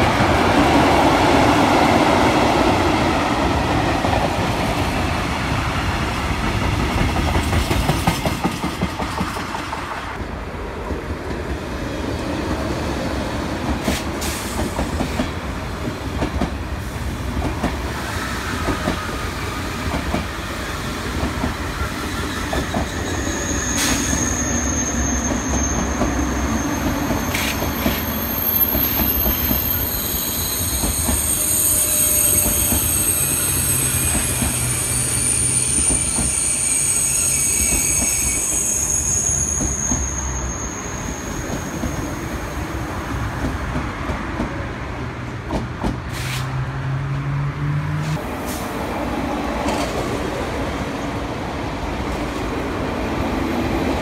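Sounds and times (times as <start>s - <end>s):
freight train rolling past: 0.0s - 54.0s
high-speed train passing slowly: 0.0s - 54.0s
wheels squealing: 21.8s - 42.4s.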